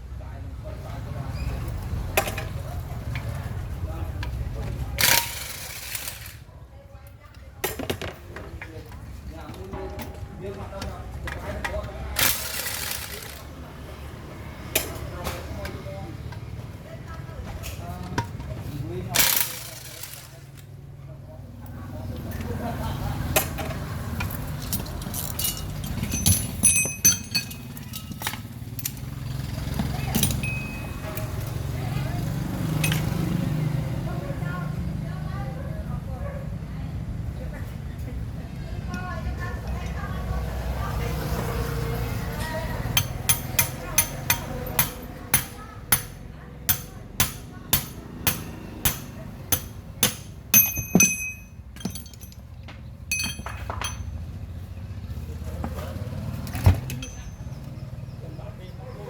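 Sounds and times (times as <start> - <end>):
metal parts clinking: 5.0 - 6.4, 12.2 - 13.4, 19.2 - 20.6, 24.2 - 29.1, 30.0 - 31.5, 32.8 - 33.2, 47.8 - 54.2, 56.6 - 57.5
hammer striking metal: 42.9 - 52.3.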